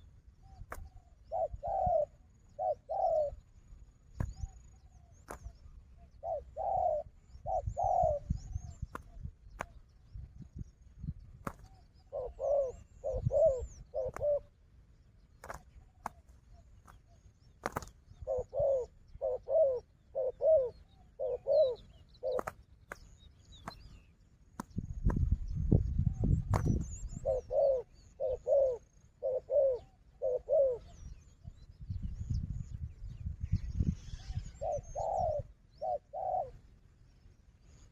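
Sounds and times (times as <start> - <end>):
small birds chirping: 0.0 - 37.9
doves cooing: 0.8 - 3.4, 5.3 - 9.7, 11.5 - 14.6, 15.4 - 23.0, 26.6 - 31.0, 34.2 - 36.6.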